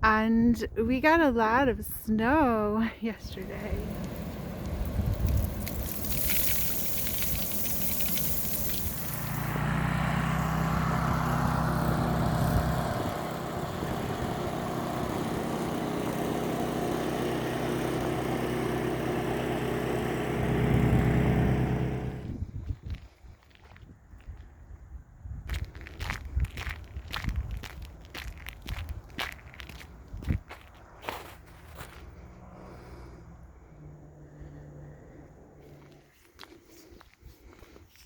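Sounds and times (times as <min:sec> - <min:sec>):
engine humming: 0:01.2 - 0:22.5, 0:27.7 - 0:36.6
rushing hiss: 0:03.7 - 0:09.5.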